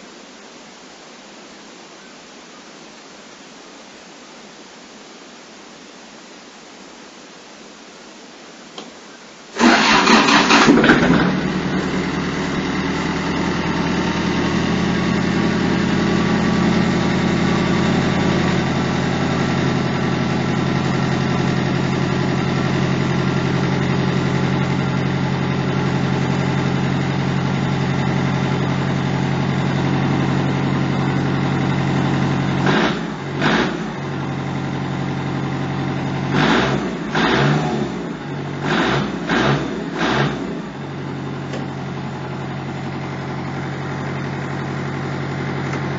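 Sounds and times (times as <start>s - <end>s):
short loud bursts: 9.5s - 11.5s
tractor diesel engine running: 9.6s - 45.9s.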